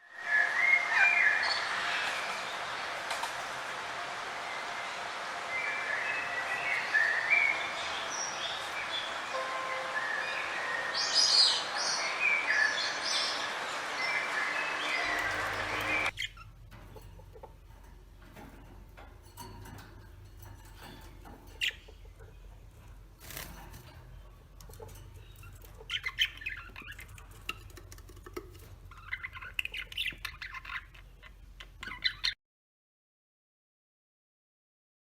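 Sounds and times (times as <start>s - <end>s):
small birds chirping and squawking: 0.4s - 3.4s, 10.3s - 32.4s
steady low hum: 12.9s - 31.8s.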